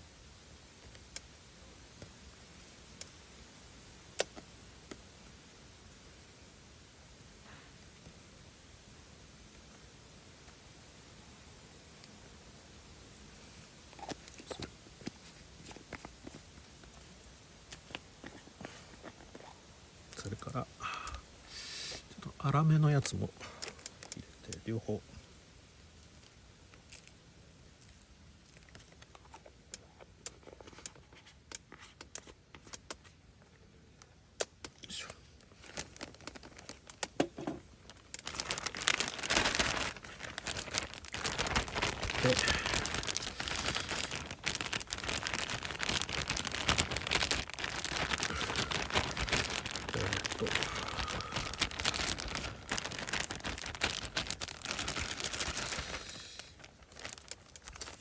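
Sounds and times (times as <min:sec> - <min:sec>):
food packaging rustling: 0:13.9 - 0:19.6, 0:35.4 - 0:58.0
plastic bag crinkling: 0:35.4 - 0:58.0.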